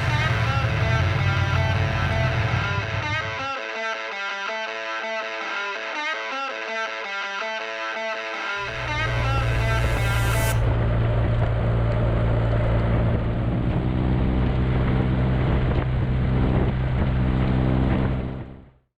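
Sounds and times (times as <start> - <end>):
motorcycle engine running: 0.0 - 3.5, 8.7 - 18.7
wind on microphone: 10.7 - 18.5.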